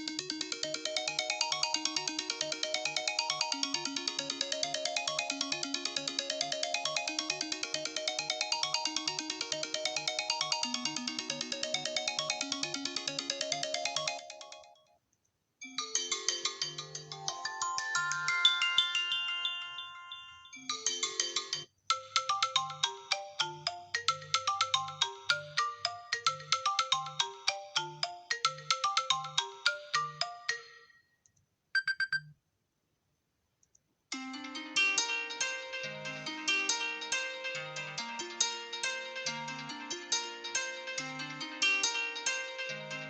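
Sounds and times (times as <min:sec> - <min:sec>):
electronic ringtone tunes: 0:00.0 - 0:14.8, 0:15.6 - 0:31.1, 0:31.8 - 0:32.3.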